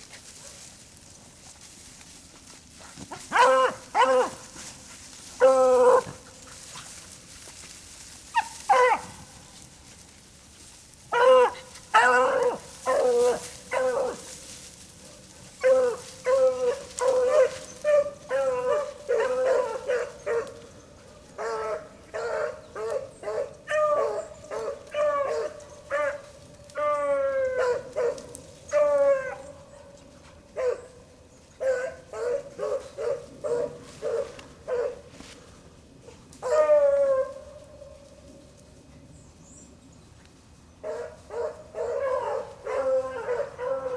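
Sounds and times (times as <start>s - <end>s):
hounds baying: 3.1s - 7.1s, 8.3s - 9.2s, 11.1s - 31.0s, 31.6s - 35.2s, 40.8s - 43.9s.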